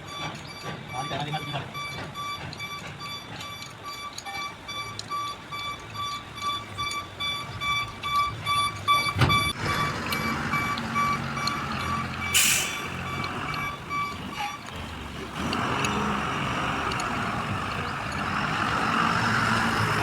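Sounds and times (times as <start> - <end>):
truck electronic beeping: 0.0 - 20.0
truck engine running: 0.0 - 20.0
air hiss: 12.3 - 13.0.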